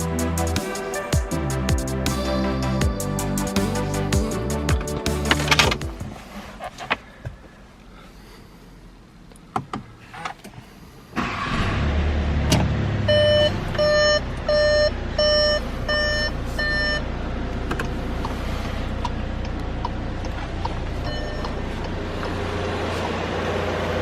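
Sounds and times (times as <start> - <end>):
car engine starting and idling: 0.0 - 24.0
dashboard warning chime beeping: 13.1 - 17.1, 19.4 - 22.4.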